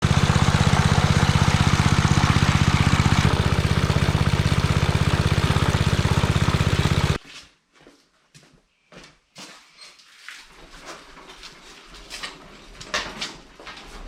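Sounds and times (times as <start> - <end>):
lawn mower engine running: 0.0 - 7.2.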